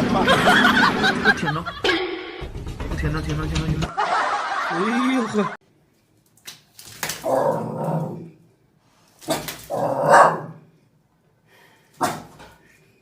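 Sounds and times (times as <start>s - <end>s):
dog barking and growling: 7.2s - 8.4s, 9.2s - 10.7s, 12.0s - 12.6s.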